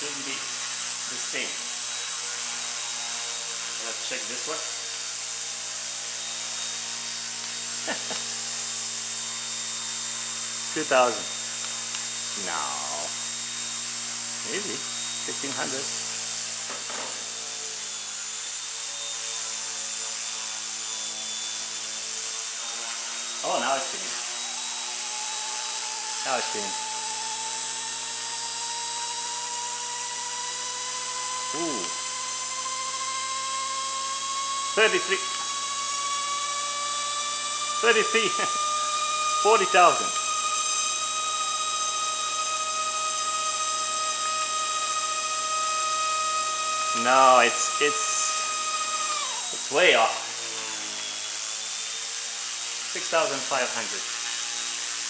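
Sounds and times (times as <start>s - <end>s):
rc helicopter rotor whine: 0.0s - 55.0s.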